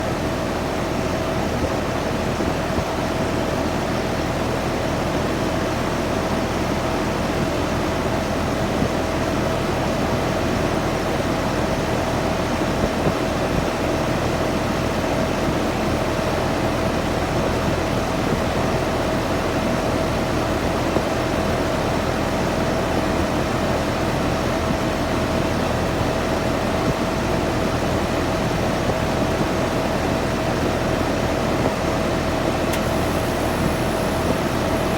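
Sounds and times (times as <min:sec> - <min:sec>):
air conditioner running: 0:00.0 - 0:34.9.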